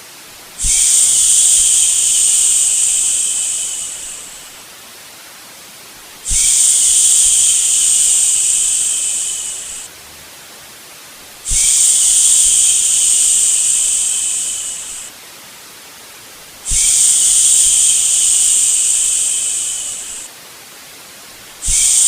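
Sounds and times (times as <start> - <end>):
faint white-noise hiss: 0.0 - 22.0
person shushing: 0.6 - 4.6, 6.3 - 9.9, 11.5 - 15.1, 16.7 - 20.3, 21.6 - 22.0.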